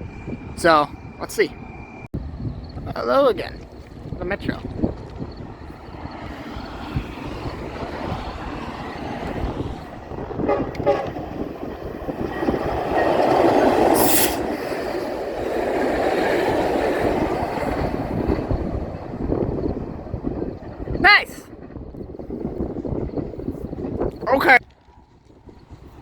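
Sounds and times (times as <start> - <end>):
train passing rumble: 0.0 - 26.0.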